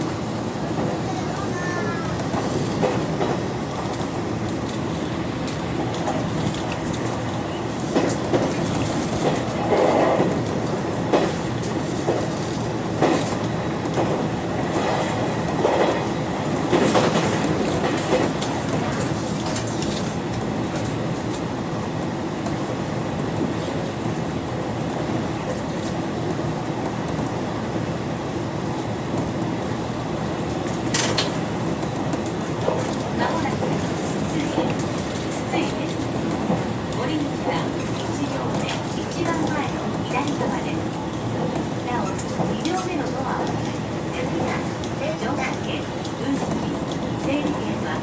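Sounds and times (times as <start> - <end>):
train wheels rumbling on rail: 0.0 - 48.0
clacks over rail joints: 7.8 - 16.0, 16.7 - 21.4.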